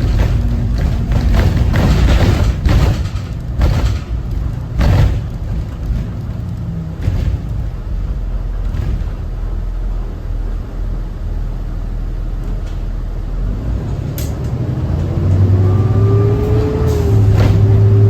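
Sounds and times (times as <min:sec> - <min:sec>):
light rattles: 0:00.0 - 0:09.8
bus diesel engine rumbling: 0:00.0 - 0:18.0.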